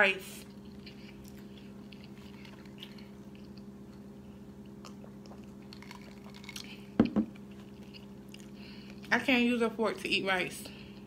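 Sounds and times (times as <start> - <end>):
person chewing: 0.4 - 9.1.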